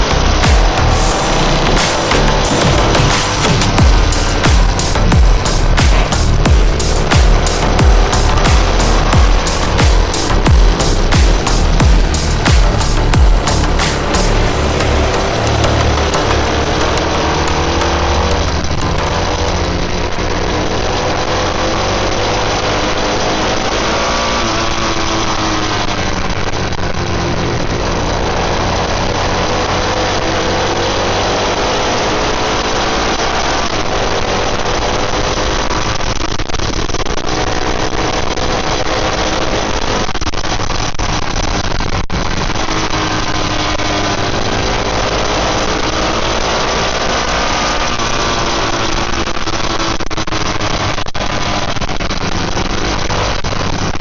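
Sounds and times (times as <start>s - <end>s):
steady rush of noise: 0.0s - 22.4s
motorcycle engines accelerating: 0.0s - 54.0s.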